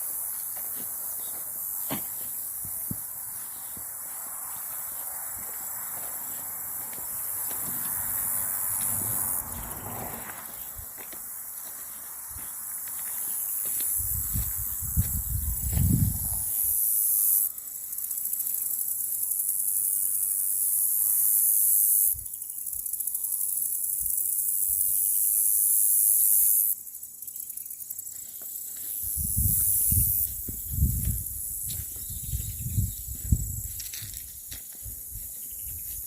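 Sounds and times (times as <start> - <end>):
footsteps on woodland floor: 0.0 - 16.1, 28.0 - 36.0
background insect song: 0.0 - 36.0
high-pitched insect buzz: 0.0 - 36.0.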